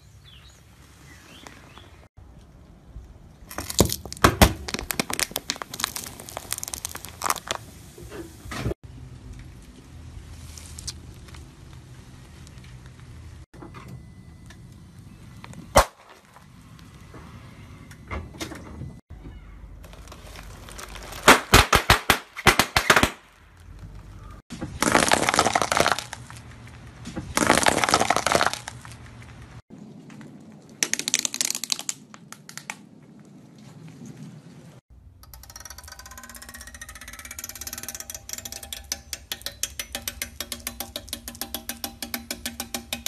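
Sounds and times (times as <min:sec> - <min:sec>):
car tyre crushing objects: 0:03.4 - 0:08.8, 0:19.8 - 0:29.6
wooden sticks snapping: 0:30.8 - 0:32.8, 0:37.3 - 0:43.0.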